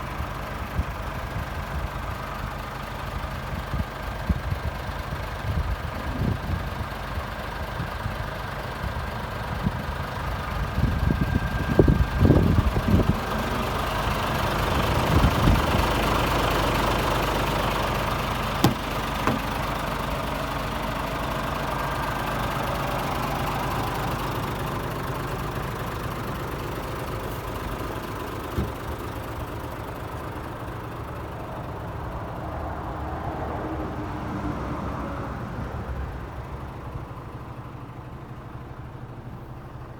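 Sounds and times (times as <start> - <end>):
diesel engine idling: 0.0 - 39.9
low thumps: 18.6 - 19.7.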